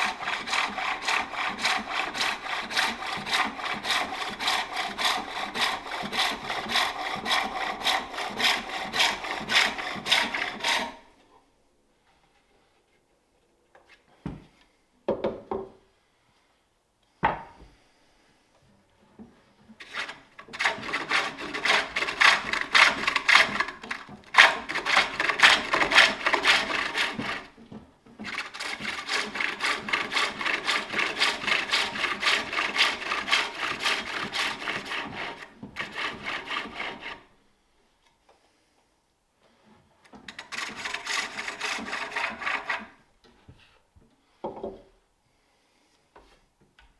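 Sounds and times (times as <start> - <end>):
tool scraping spinning wood: 0.0 - 11.0, 19.8 - 27.6, 28.2 - 37.3, 40.2 - 43.0.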